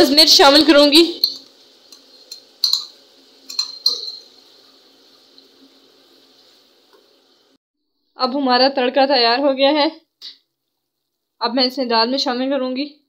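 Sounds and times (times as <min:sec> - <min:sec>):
food sizzling in hot oil: 0:00.0 - 0:07.6
ladle knocking against pan: 0:01.2 - 0:04.3.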